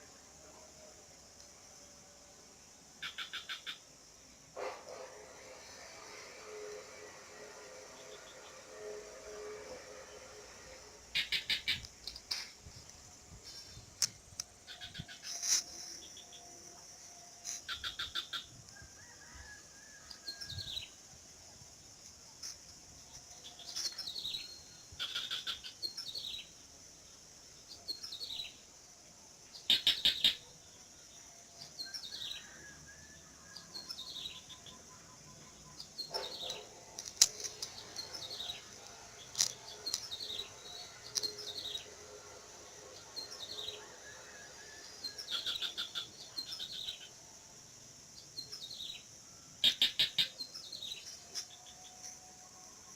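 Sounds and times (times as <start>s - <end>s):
rapid clicking bird trills: 11.2s - 12.5s, 29.7s - 30.4s, 49.6s - 50.5s.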